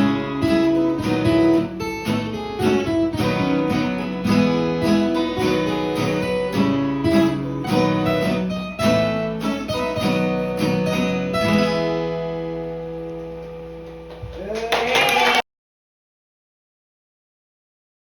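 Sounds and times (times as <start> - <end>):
acoustic guitar chords: 0.0 - 14.3.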